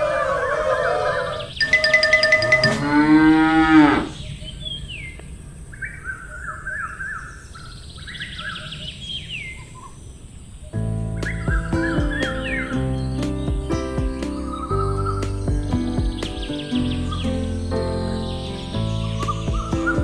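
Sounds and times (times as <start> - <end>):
short falling whistles: 0.0 - 3.0
cow mooing: 0.0 - 4.2
bird chirps: 1.2 - 3.1, 11.1 - 20.0.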